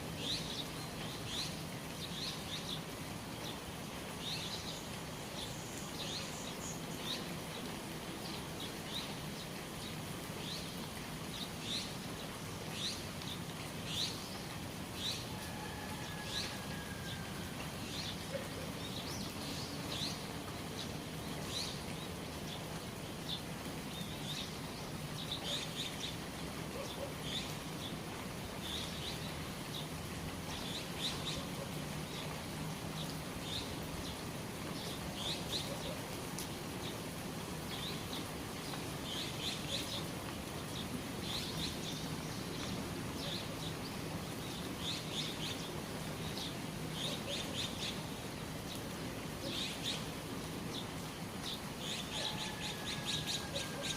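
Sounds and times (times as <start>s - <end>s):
rain falling and dripping: 0.0s - 53.9s
small birds chirping: 17.6s - 52.6s.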